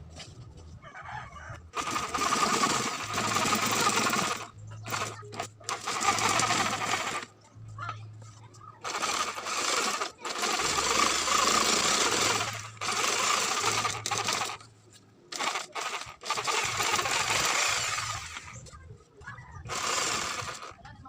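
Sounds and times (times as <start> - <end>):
power tool on wood: 1.8 - 7.3, 8.8 - 14.7, 15.3 - 18.6, 19.7 - 20.8.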